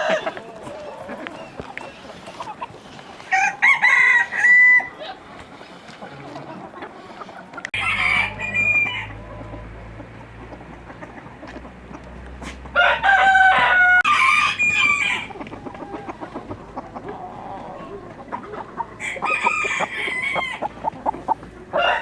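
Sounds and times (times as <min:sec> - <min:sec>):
chicken calling: 0:00.0 - 0:22.0
chickens clucking: 0:00.0 - 0:22.0
rooster crowing: 0:03.3 - 0:05.0, 0:07.8 - 0:09.4, 0:12.8 - 0:15.4, 0:19.0 - 0:20.6, 0:21.7 - 0:22.0.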